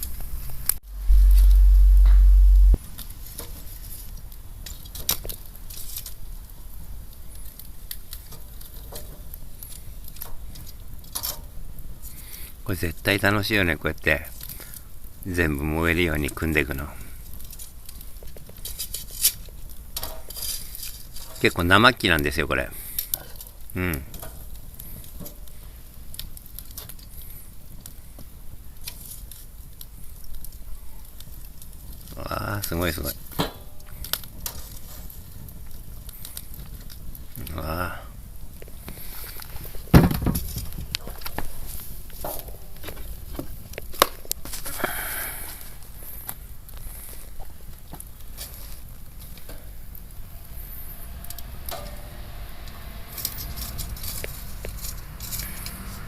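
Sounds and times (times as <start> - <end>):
bonfire crackling and popping: 0.0 - 56.0
loud low rumble: 0.8 - 2.8, 49.2 - 56.0.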